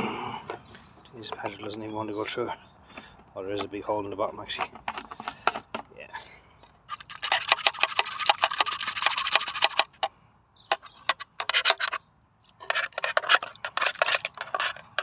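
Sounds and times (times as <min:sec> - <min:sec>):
tool scraping sludge: 0:06.9 - 0:10.1, 0:10.7 - 0:12.0, 0:12.6 - 0:15.0.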